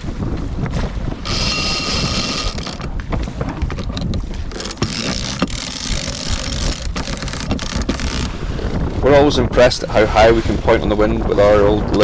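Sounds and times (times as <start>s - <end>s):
wind over microphone: 0.0s - 12.0s
winch ratcheting clicks: 1.2s - 2.9s, 3.7s - 8.3s.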